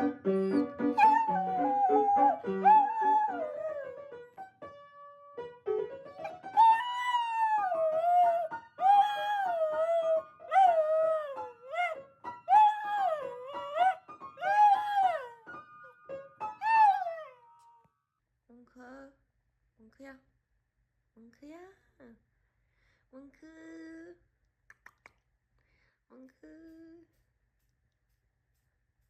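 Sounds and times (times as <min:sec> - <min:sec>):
piano music: 0:00.0 - 0:17.6
dog howling: 0:00.4 - 0:04.0, 0:06.3 - 0:15.4, 0:16.6 - 0:17.5.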